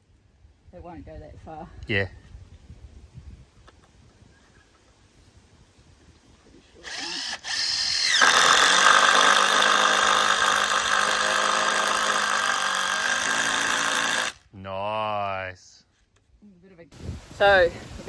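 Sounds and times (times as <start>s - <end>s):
power drill driving a screw: 6.8s - 14.4s.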